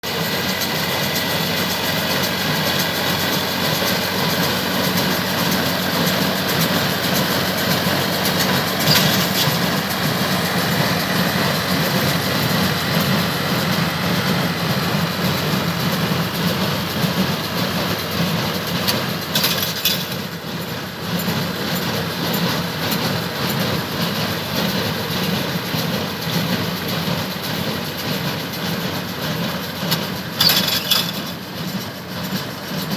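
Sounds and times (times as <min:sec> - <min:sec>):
tractor engine running: 0:00.0 - 0:32.9
baler mechanism clattering: 0:08.8 - 0:09.8, 0:19.3 - 0:20.2, 0:30.4 - 0:31.5.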